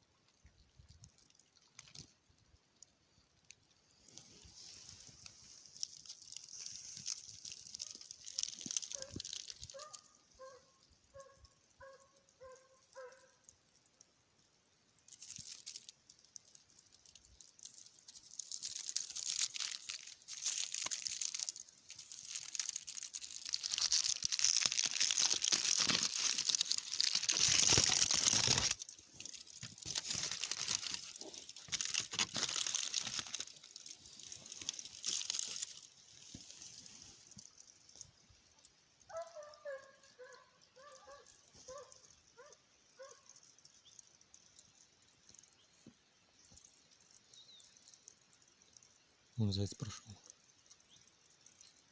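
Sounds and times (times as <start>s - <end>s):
crunching and rustling: 0.8s - 2.6s, 3.4s - 14.1s, 15.0s - 43.5s.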